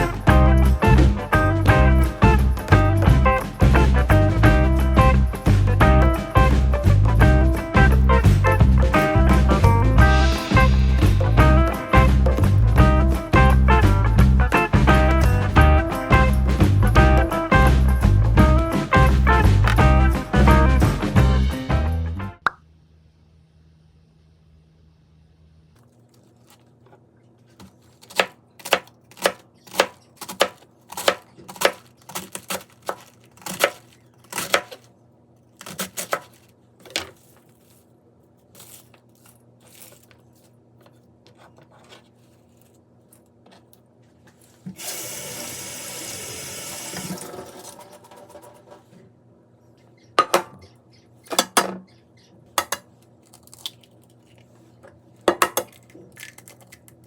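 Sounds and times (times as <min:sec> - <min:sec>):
tap water running: 0:44.7 - 0:48.7
kitchen knocks and clatters: 0:50.2 - 0:50.6, 0:55.2 - 0:56.5.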